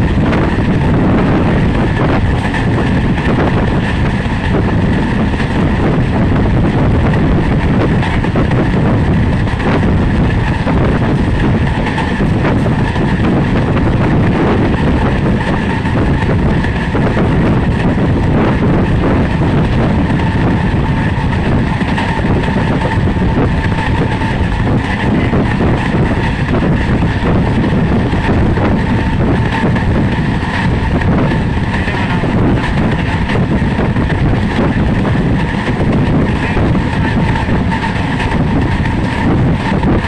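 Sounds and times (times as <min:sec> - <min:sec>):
rushing air: 0:00.0 - 0:40.0
train wheels rumbling on rails: 0:00.0 - 0:40.0.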